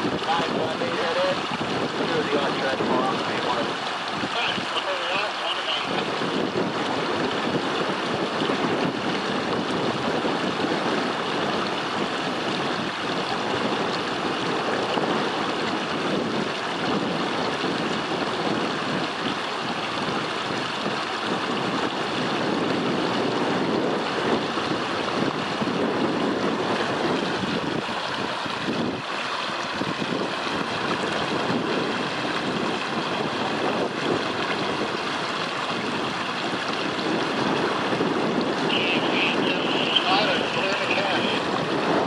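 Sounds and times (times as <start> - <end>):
wind on microphone: 0.0 - 42.0.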